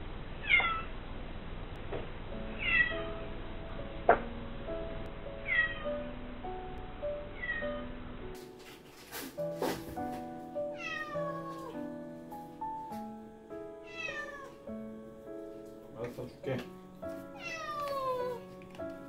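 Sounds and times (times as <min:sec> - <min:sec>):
cat meowing: 0:00.4 - 0:00.9, 0:02.6 - 0:03.1, 0:05.5 - 0:06.0, 0:07.4 - 0:07.9, 0:10.7 - 0:12.0, 0:13.8 - 0:14.7, 0:17.4 - 0:18.5
gentle background music: 0:01.8 - 0:19.0.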